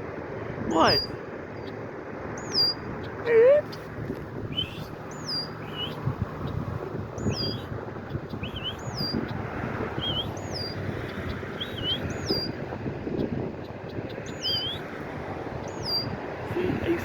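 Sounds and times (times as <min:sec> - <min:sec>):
bird whistled chirps: 0:02.4 - 0:02.9, 0:04.5 - 0:06.0, 0:07.2 - 0:07.7, 0:08.4 - 0:09.2, 0:10.0 - 0:10.8, 0:11.5 - 0:12.6, 0:14.3 - 0:14.8, 0:15.8 - 0:16.1.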